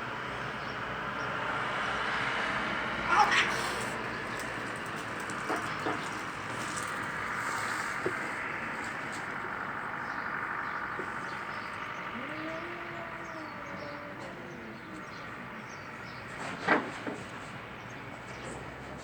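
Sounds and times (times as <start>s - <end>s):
background hum: 2.4s - 18.7s
cat yowling: 3.0s - 4.0s, 12.2s - 15.2s.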